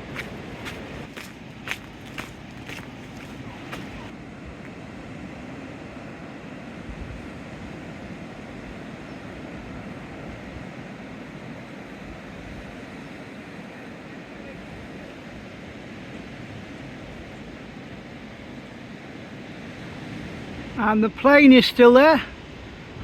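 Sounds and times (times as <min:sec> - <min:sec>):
sea waves washing: 0:00.0 - 0:23.0
wind on microphone: 0:06.8 - 0:08.4.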